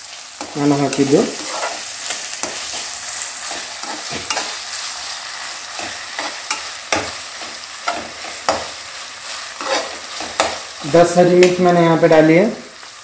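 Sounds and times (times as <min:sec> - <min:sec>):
onions sizzling in oil: 0:00.0 - 0:13.0
metal spatula scraping pan: 0:00.4 - 0:10.7.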